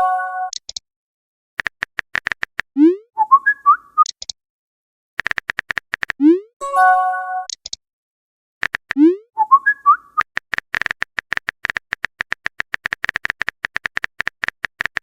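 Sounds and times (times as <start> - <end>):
quick electronic clicks: 1.6 - 4.4, 5.2 - 6.3, 7.4 - 7.8, 8.6 - 15.0.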